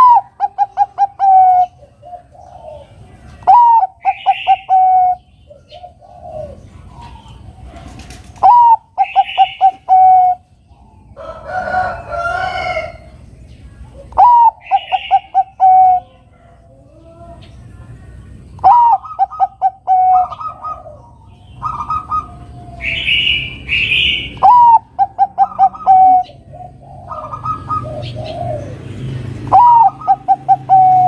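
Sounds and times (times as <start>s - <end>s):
dove cooing song: 0.0s - 31.0s
harsh bird call: 3.4s - 5.3s, 6.4s - 10.5s, 14.1s - 16.1s, 18.6s - 26.4s, 29.5s - 31.0s.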